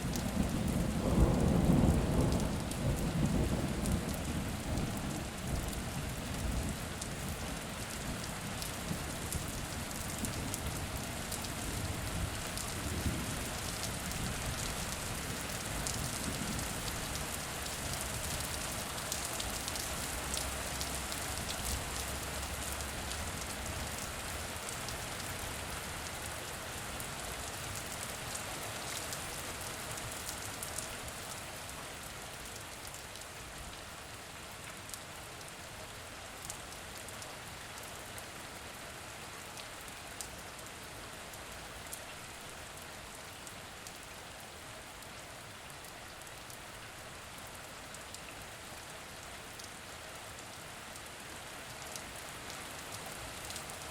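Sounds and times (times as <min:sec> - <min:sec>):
steady rain falling: 0:00.0 - 0:53.9
low rumble of thunder: 0:00.1 - 0:07.3, 0:11.7 - 0:16.8.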